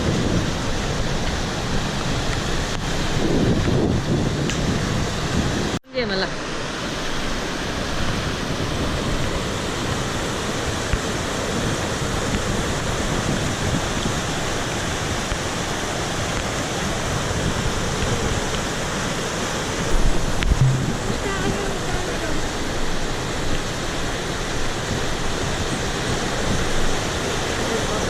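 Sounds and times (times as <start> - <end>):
mountain stream rushing: 0.0 - 28.0
low rumble: 20.4 - 21.5.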